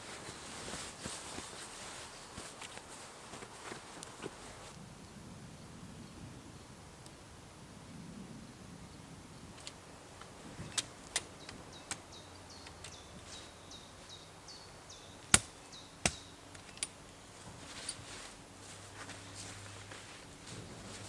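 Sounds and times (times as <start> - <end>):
songbird chirping: 8.5 - 21.0.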